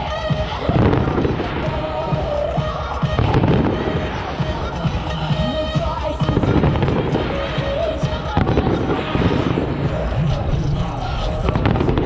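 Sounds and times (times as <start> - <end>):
fireworks banging: 0.0 - 12.0
music: 0.0 - 12.0
low rumble: 8.4 - 12.0.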